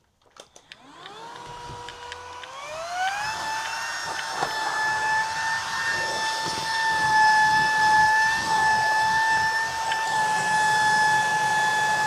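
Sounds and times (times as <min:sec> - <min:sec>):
vacuum cleaner motor whine: 0:00.4 - 0:12.0.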